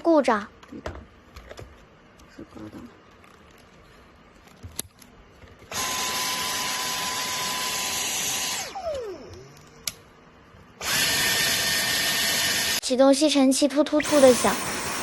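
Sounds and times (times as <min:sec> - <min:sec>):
vacuum cleaner motor whine: 0:05.7 - 0:09.6, 0:10.8 - 0:12.8, 0:14.0 - 0:15.0.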